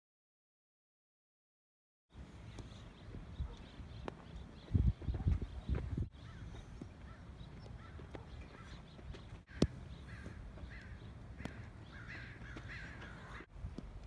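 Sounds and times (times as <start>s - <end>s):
caw-like bird calls: 6.1s - 13.5s.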